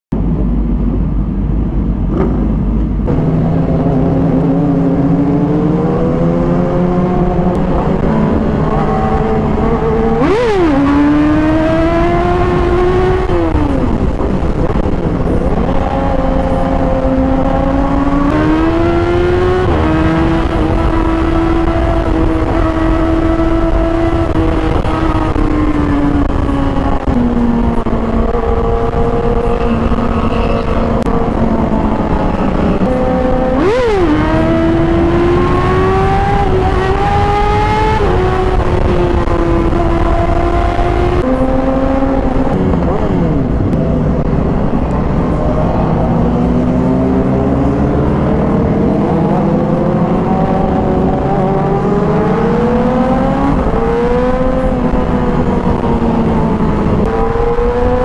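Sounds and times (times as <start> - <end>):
wind and road noise: 0.1 - 58.0
motorcycle engine accelerating: 0.2 - 58.0.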